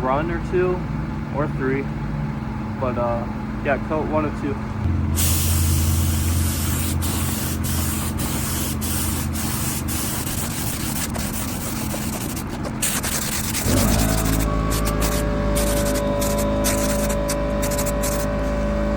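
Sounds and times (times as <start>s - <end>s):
steady tones: 4.8s - 18.9s
spray gun hissing: 5.2s - 18.3s.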